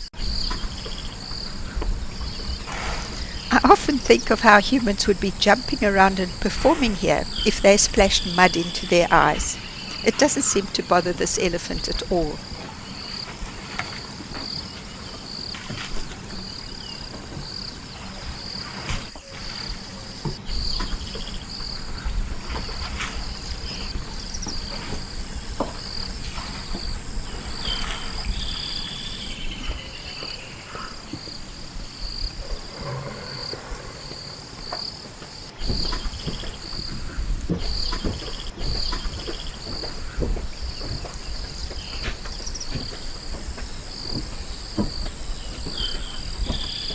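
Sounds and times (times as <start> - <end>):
insects trilling: 0.0 - 46.9
bird chirps: 5.6 - 13.3.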